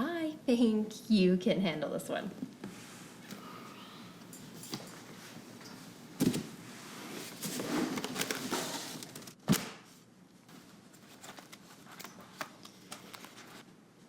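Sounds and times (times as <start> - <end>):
papers rustling: 7.1 - 9.7, 10.5 - 13.7.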